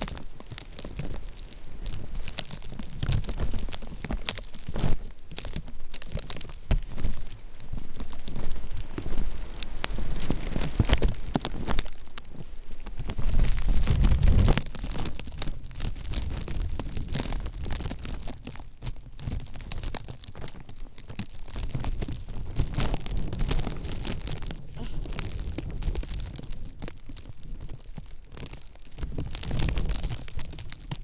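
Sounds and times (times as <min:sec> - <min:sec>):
crackle of small ticks: 0:00.0 - 0:31.0
wind buffeting microphone: 0:21.1 - 0:27.7.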